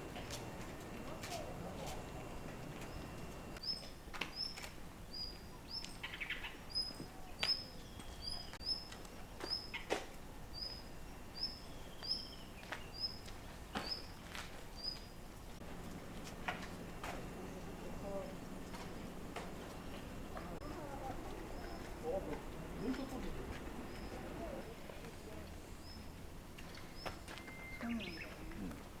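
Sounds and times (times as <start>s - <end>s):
faint background noise: 0.0s - 29.0s
small bird chirping: 14.8s - 15.1s.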